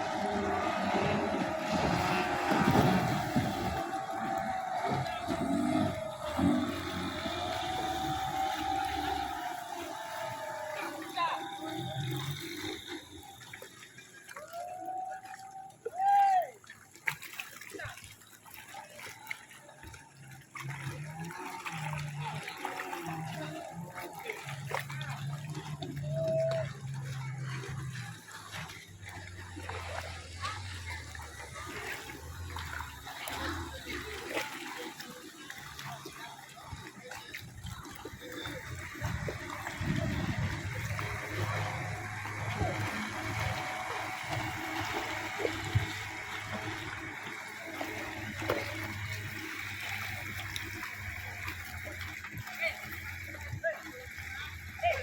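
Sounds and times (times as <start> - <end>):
small boat engine humming: 0.0 - 55.0
water splashing: 0.0 - 55.0
steady low hum: 38.2 - 52.1.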